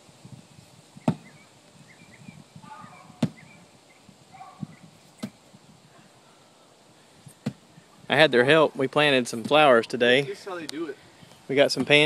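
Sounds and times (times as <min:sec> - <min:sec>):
sledgehammer striking tree stump: 0:01.0 - 0:01.3, 0:03.2 - 0:03.4.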